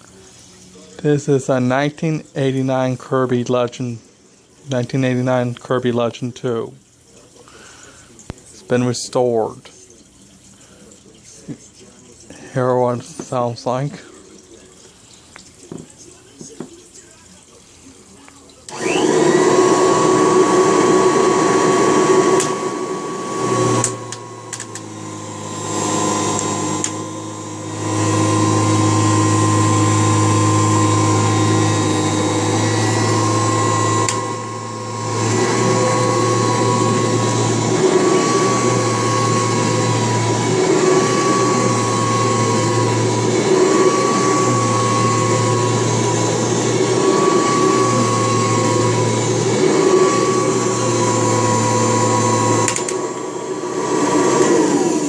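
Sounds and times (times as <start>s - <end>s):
vacuum cleaner motor whine: 18.7s - 55.0s.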